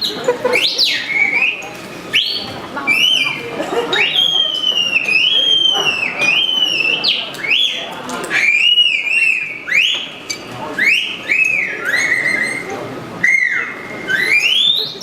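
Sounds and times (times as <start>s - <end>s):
person whistling bird calls: 10.8s - 15.0s.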